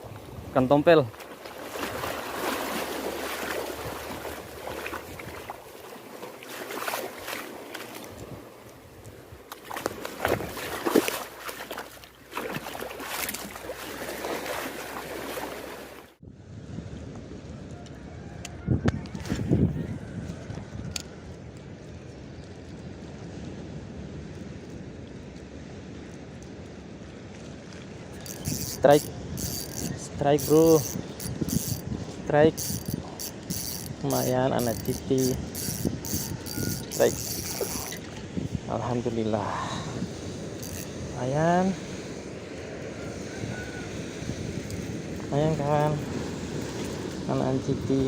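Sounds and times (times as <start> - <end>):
sea waves washing ashore: 0.0 - 16.2, 22.6 - 48.0
surf on shore: 0.0 - 16.2, 22.9 - 48.0
wind buffeting microphone: 16.3 - 24.6, 28.0 - 48.0.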